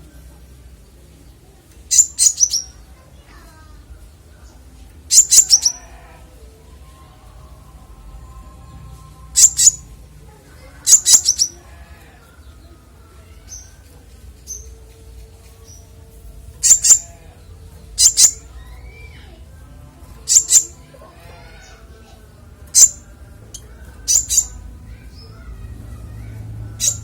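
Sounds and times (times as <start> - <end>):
songbird sharp chirps: 1.8 - 2.8, 5.1 - 5.8, 9.3 - 9.9, 16.6 - 17.0, 17.9 - 19.2, 20.3 - 20.8, 22.7 - 24.7.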